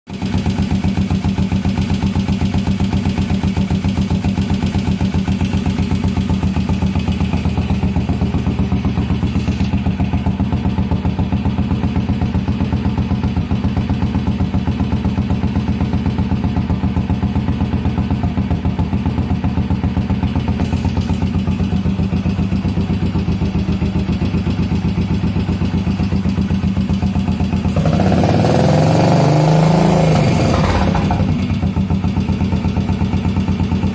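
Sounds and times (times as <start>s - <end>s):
motorcycle engine idling and revving: 0.1s - 33.9s.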